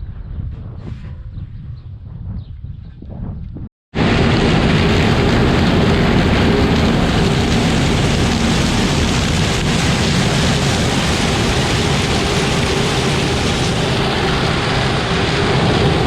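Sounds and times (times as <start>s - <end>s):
loud rushing noise: 4.0s - 16.0s
tractor engine running: 4.0s - 16.0s.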